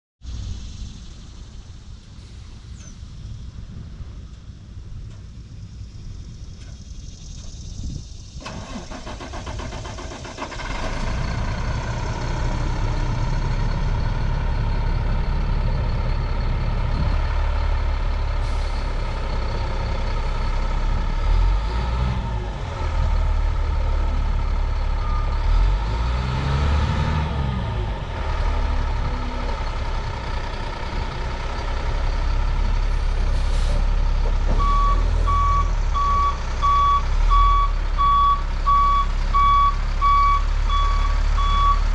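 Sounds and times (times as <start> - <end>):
heavy truck engine running: 0.7 - 41.9
backup alarm beeping: 34.6 - 41.8.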